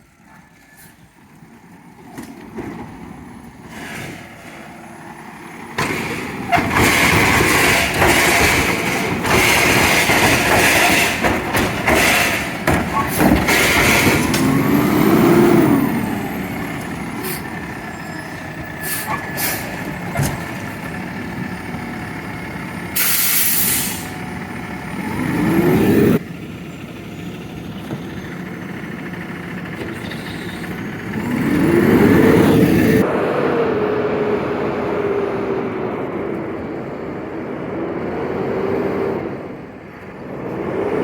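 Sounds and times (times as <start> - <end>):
diesel engine revving: 1.3 - 41.0
air brake hiss: 23.0 - 24.2.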